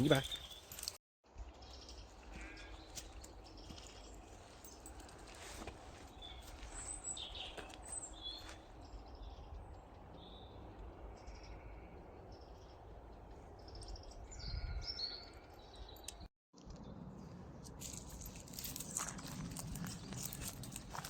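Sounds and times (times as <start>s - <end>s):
birds chirping and singing: 0.0s - 0.9s, 6.1s - 16.3s.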